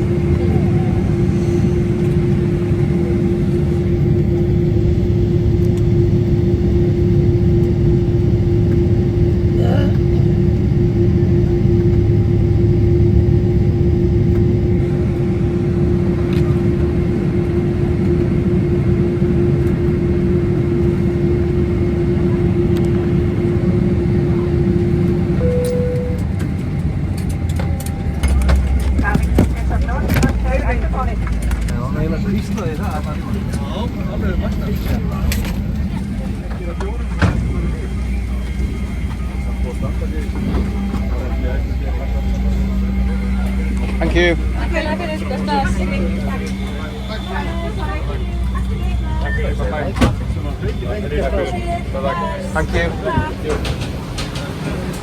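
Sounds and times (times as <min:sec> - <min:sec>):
constant hum: 0:00.0 - 0:55.0
vehicle rumble from inside: 0:24.4 - 0:55.0
brief higher tone: 0:25.4 - 0:26.4.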